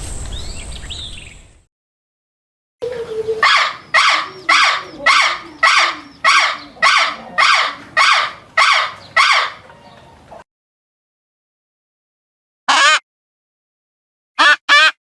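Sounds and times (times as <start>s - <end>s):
animal's harsh call: 3.1s - 9.7s, 12.7s - 13.0s.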